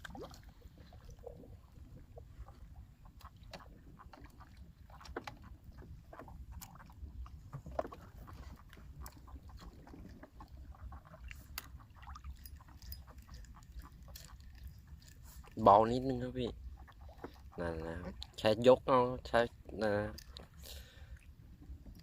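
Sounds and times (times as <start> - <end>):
boat low rumble: 0.0 - 22.0.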